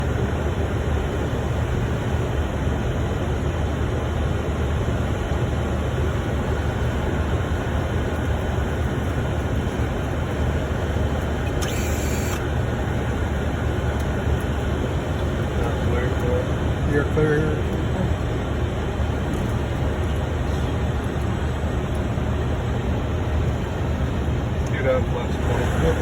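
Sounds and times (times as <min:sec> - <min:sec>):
aircraft cockpit rumble: 0:00.0 - 0:26.0.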